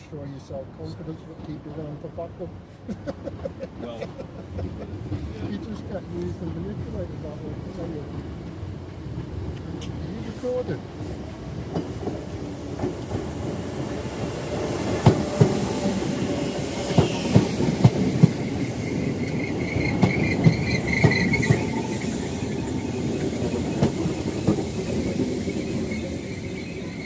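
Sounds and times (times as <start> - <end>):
train rumbling: 0.0 - 27.0
high wheel squeal: 15.6 - 27.0.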